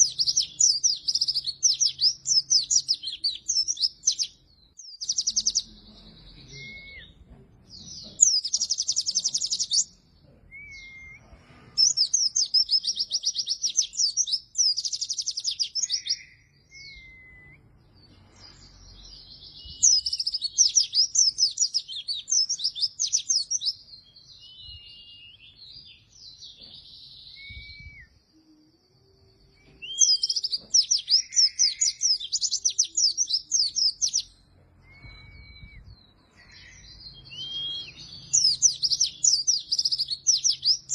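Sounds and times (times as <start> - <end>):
bird high chattering song: 0.0 - 28.2, 29.0 - 40.9
soft short whistles: 34.8 - 36.0.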